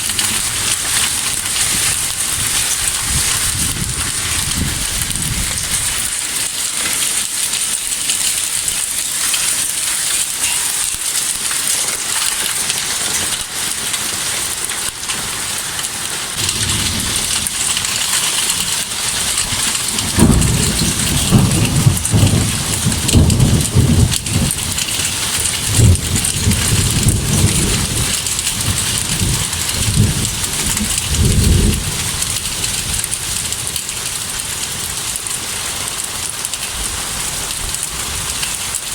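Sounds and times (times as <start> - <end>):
thunder rumbling: 0.0 - 6.2, 16.3 - 35.2
heavy rain downpour: 0.0 - 38.9.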